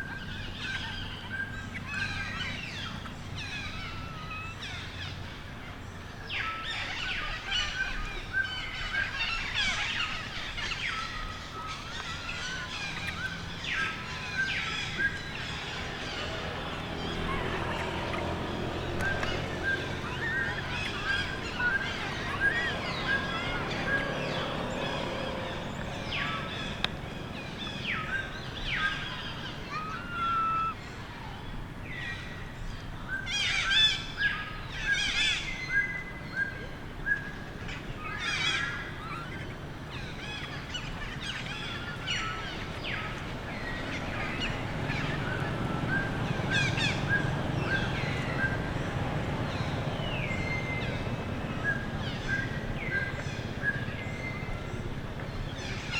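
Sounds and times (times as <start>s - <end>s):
baby monkey crying: 29.7s - 30.8s.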